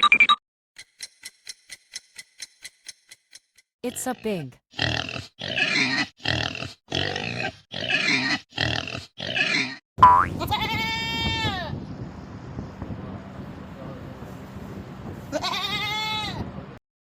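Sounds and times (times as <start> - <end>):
pig grunting: 4.8 - 9.8.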